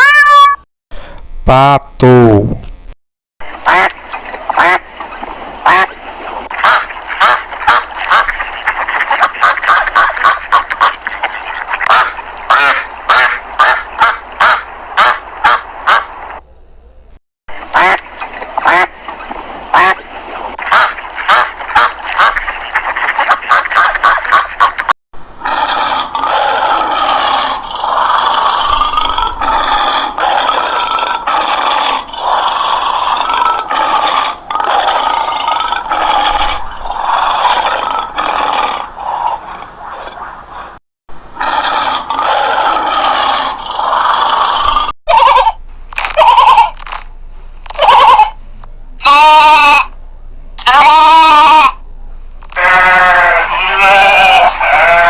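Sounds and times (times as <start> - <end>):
ducks quacking: 3.4 - 16.4, 17.5 - 24.9.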